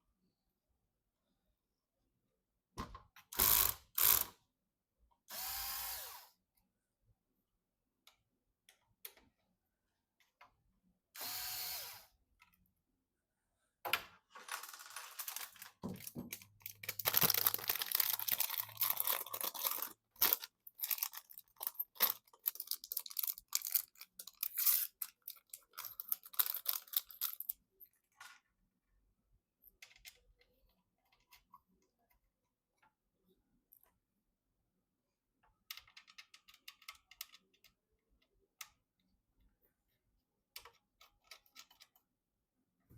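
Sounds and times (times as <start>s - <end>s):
parts and tools clicking and rattling: 14.3s - 28.5s, 40.5s - 42.1s.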